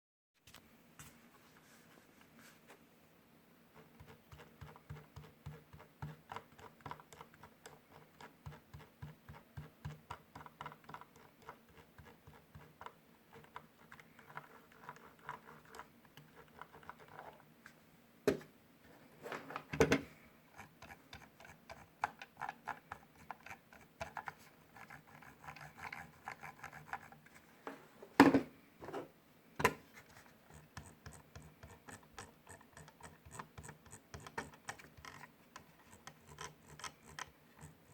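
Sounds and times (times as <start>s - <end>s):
mouse scroll wheel ticking: 3.7s - 17.4s, 20.5s - 27.2s, 30.1s - 37.9s.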